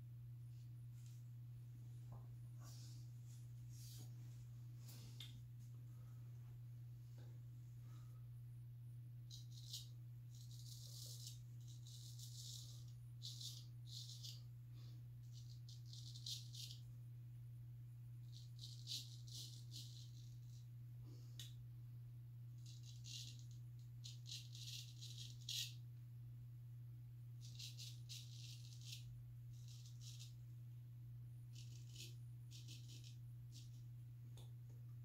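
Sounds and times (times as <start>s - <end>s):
low hum: 0.0s - 35.0s
razor scraping stubble: 9.3s - 14.5s, 15.3s - 16.8s, 18.3s - 20.6s, 22.6s - 25.8s, 27.4s - 30.4s, 31.5s - 33.8s.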